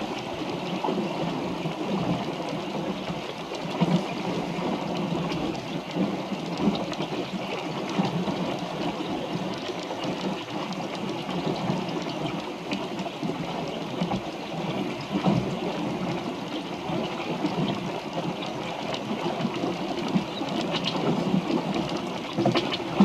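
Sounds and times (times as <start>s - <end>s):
water splashing and rushing: 0.0s - 23.0s
small ticks and knocks: 3.5s - 14.2s, 16.9s - 23.0s.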